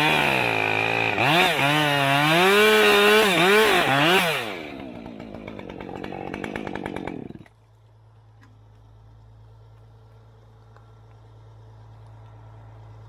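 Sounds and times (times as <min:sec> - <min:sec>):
chainsaw engine revving: 0:00.0 - 0:07.6.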